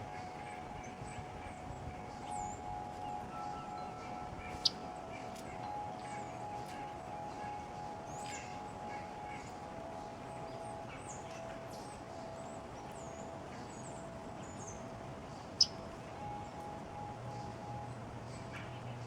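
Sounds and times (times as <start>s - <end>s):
faint steady hum: 0.0s - 19.0s
small birds chirping: 0.5s - 19.0s.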